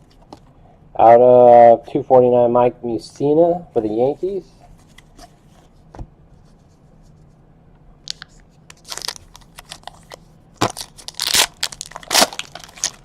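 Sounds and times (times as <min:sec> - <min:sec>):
card pack wrappers crinkling: 0:08.1 - 0:13.0.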